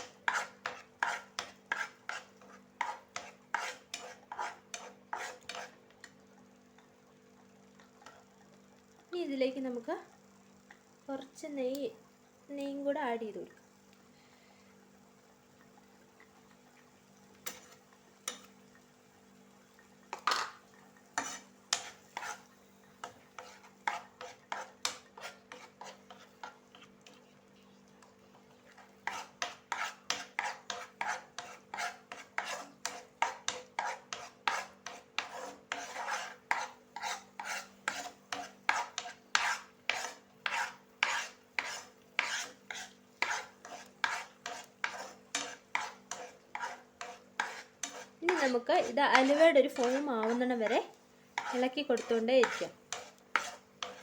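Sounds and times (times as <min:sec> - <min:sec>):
spoon scraping a pan: 0:00.0 - 0:06.2, 0:07.8 - 0:08.4, 0:15.6 - 0:18.8, 0:19.7 - 0:54.0
faint steady hum: 0:00.7 - 0:32.1.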